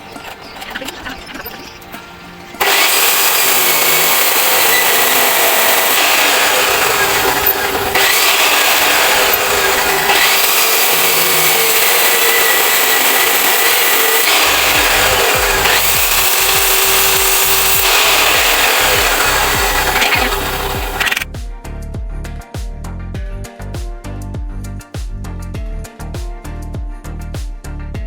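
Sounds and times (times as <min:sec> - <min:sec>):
power tool cutting: 0:02.6 - 0:21.3.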